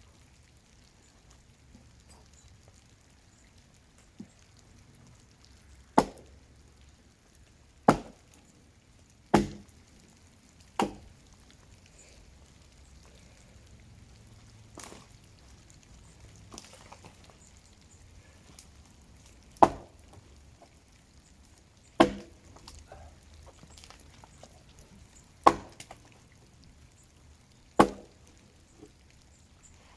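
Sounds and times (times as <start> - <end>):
axe chopping into tree: 6.0 - 6.3, 7.9 - 8.2, 9.3 - 9.7, 10.8 - 11.1, 19.6 - 20.0, 22.0 - 22.4, 25.4 - 25.9, 27.8 - 28.2.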